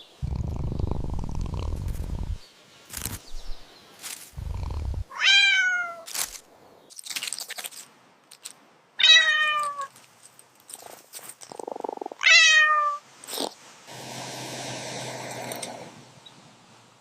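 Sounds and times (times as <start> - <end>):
cat meowing: 5.1 - 6.0, 12.2 - 13.0.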